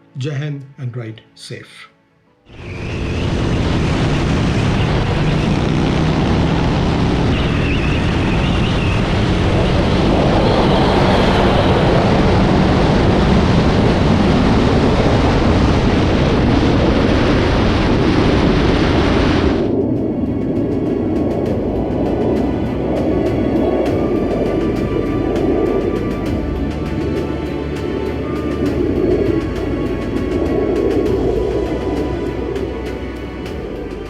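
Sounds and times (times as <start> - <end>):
wind rushing on microphone: 2.5 - 34.0
motorcycle engine running: 3.1 - 12.6.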